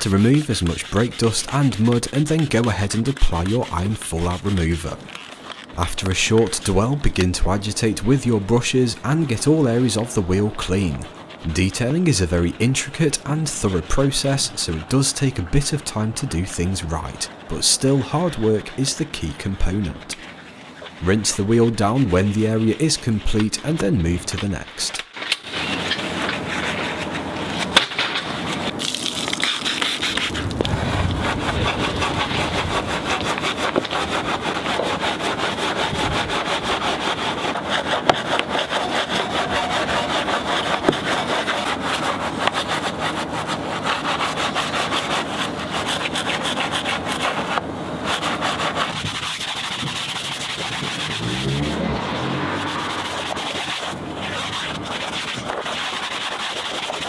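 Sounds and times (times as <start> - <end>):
brushes scrubbing a wheel: 0.0 - 57.0
motor starting up: 49.8 - 54.0.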